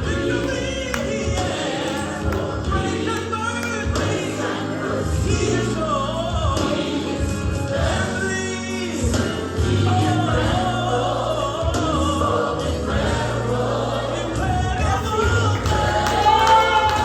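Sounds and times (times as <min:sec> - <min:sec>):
band playing: 0:00.0 - 0:10.9, 0:14.3 - 0:17.0
gospel choir singing: 0:00.0 - 0:17.0
steady bass: 0:00.0 - 0:17.0.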